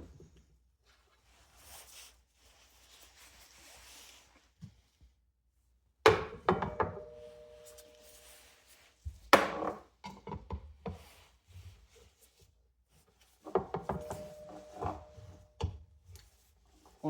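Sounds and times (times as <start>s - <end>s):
short ringing tone: 6.8s - 8.4s, 14.0s - 15.4s.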